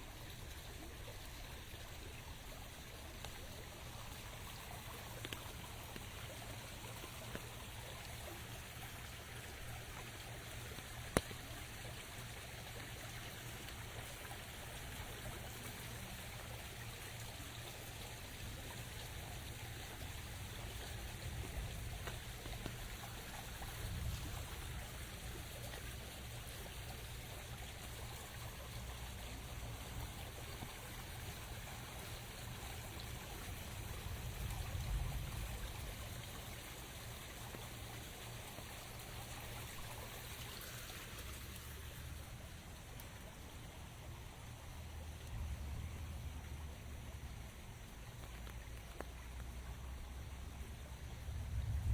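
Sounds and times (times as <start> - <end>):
steady rain: 0.0 - 51.9
water trickling: 0.0 - 51.9
low rumble: 51.2 - 51.9.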